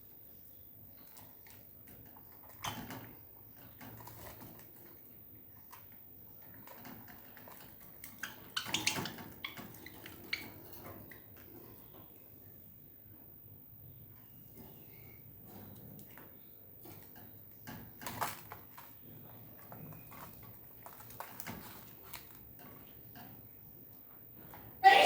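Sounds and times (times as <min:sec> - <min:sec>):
budgies pecking and tapping: 0:01.0 - 0:12.2, 0:15.5 - 0:23.4
budgies scuffling: 0:05.7 - 0:12.4, 0:14.0 - 0:23.0.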